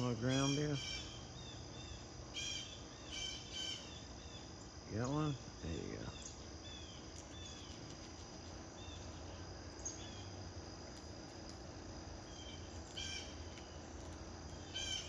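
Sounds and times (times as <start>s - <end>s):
small birds chirping: 0.0s - 11.6s, 12.2s - 15.0s
high insect trill: 0.0s - 15.0s.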